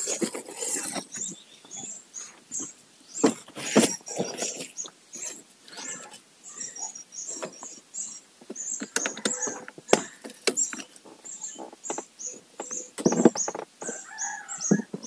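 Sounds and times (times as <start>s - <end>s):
small birds chirping: 0.0s - 15.0s
sharp clicks and knocks: 8.4s - 14.0s.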